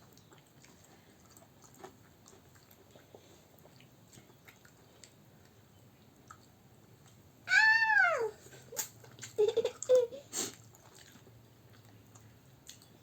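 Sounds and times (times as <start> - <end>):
child squealing: 7.5 - 8.4.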